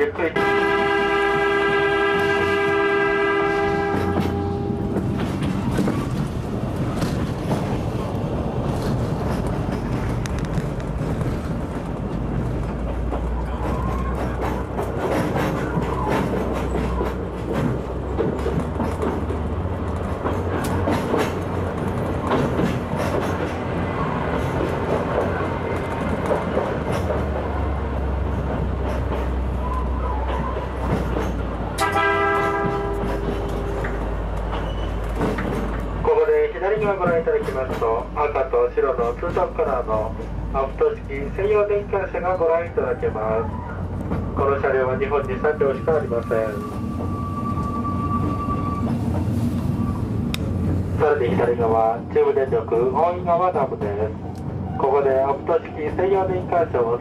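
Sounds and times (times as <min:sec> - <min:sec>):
train rumbling: 0:00.0 - 0:57.0
train horn: 0:00.4 - 0:05.0, 0:31.8 - 0:33.9
wheels clicking over rail joints: 0:01.4 - 0:40.4.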